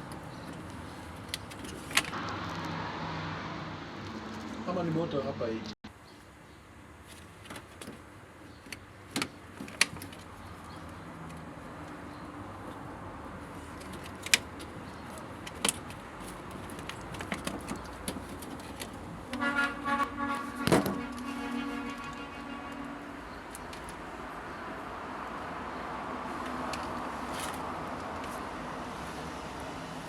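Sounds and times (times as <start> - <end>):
pulsing horn-like tone: 19.4 - 23.2.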